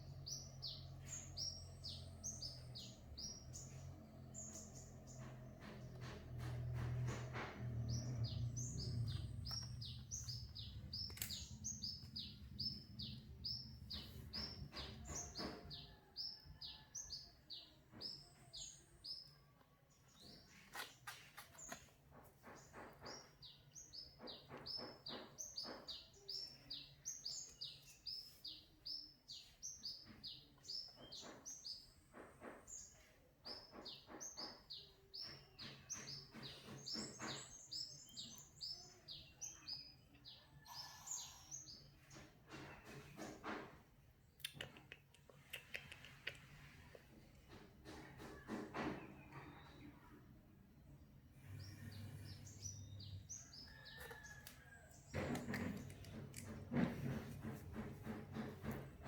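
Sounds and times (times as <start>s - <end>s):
soft knocks: 5.0s - 9.1s, 55.1s - 59.0s
low hum: 5.9s - 14.7s.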